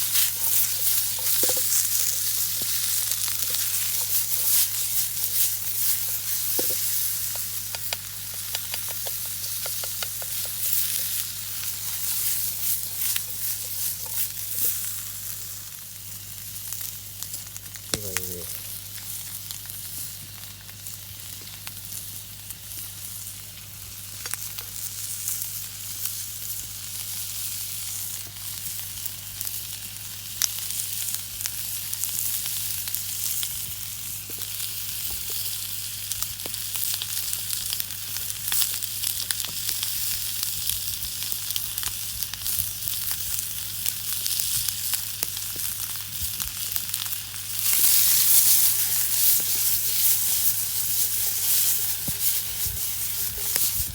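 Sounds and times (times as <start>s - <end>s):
food sizzling in a frying pan: 0.0s - 53.9s.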